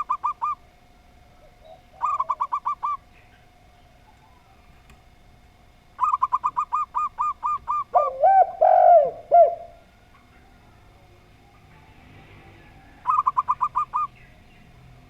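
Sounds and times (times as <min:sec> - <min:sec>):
low long dove coos: 0:00.0 - 0:00.6, 0:01.2 - 0:03.1, 0:06.0 - 0:14.2
short high dove coos: 0:06.0 - 0:09.9.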